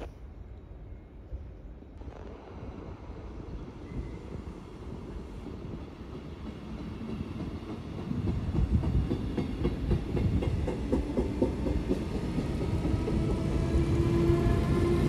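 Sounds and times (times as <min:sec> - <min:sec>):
train wheel squeal: 0:03.5 - 0:04.8
train wheels clattering: 0:04.0 - 0:15.0.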